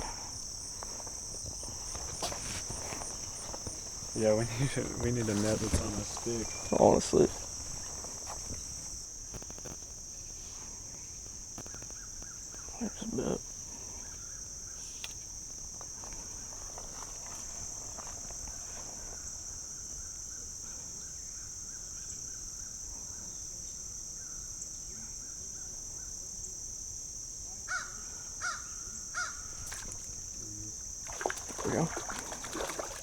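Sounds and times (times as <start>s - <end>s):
crickets chirping: 0.0s - 33.0s.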